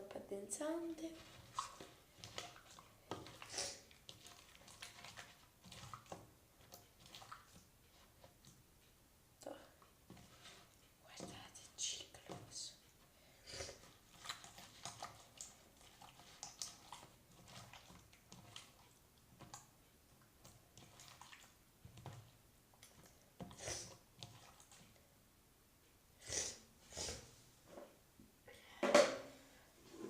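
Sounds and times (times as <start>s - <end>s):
slime squishing by hand: 13.7s - 25.0s.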